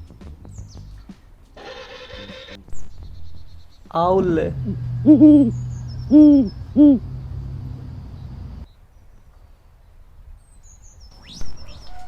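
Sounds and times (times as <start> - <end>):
steady low hum: 4.0 - 8.7
owl hooting: 4.5 - 8.6.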